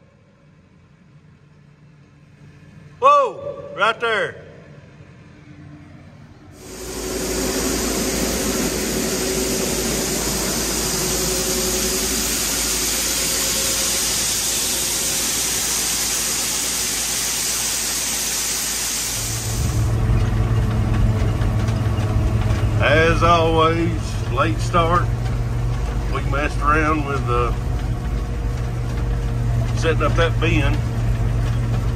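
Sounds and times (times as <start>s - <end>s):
loud steady rushing noise: 6.6s - 20.0s
low engine idle: 6.6s - 31.9s.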